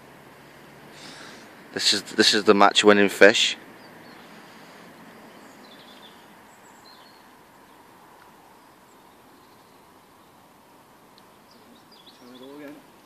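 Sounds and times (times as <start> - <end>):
faint bird chirps: 3.8 - 10.5, 11.1 - 13.0.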